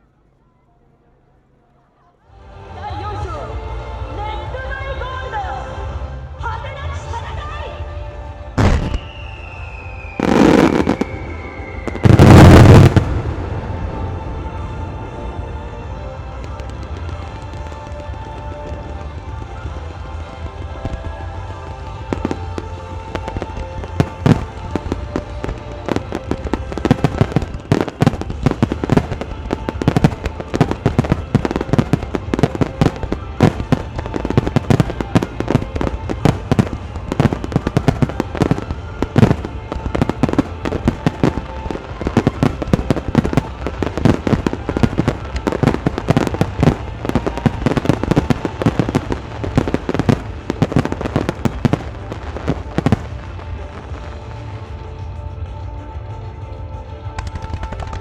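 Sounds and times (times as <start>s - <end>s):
music playing: 2.3s - 58.0s
fireworks bursting: 8.6s - 14.2s, 15.8s - 54.9s.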